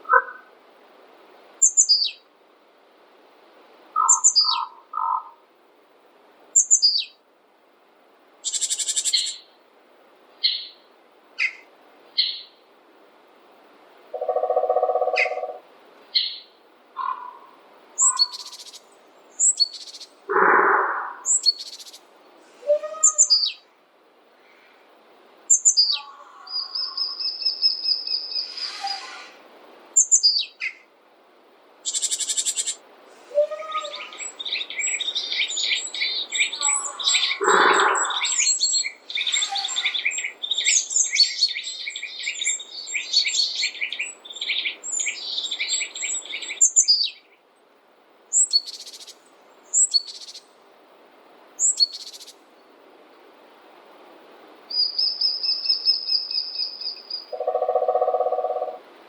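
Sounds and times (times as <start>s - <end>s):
lower bird call: 14.2s - 15.6s, 16.2s - 18.8s, 19.4s - 23.6s, 25.5s - 29.4s, 31.9s - 47.2s, 54.7s - 58.8s
birds chirping and singing: 18.0s - 18.8s, 22.7s - 23.6s, 33.4s - 47.2s.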